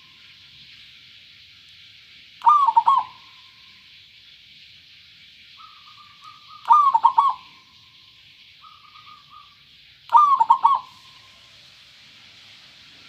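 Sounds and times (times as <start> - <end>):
dove cooing: 2.4 - 3.3, 5.6 - 7.6, 10.1 - 11.1.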